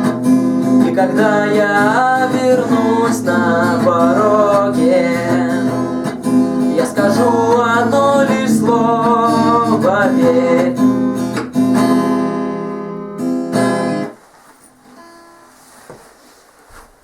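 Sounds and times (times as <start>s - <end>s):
acoustic guitar strumming: 0.0s - 16.4s
man singing: 0.7s - 11.1s.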